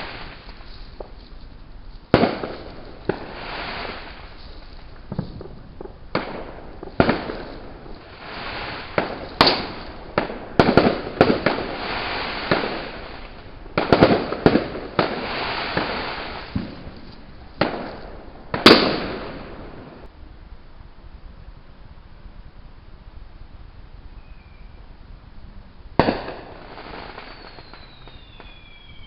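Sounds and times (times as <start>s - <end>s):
fireworks bangs: 0.0s - 1.3s, 2.1s - 20.1s, 25.9s - 29.0s
fireworks crackling: 0.0s - 29.0s.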